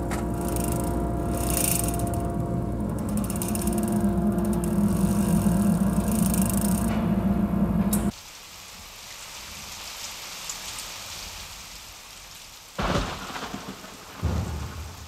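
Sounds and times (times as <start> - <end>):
loud rumbling crash: 14.2 - 15.0.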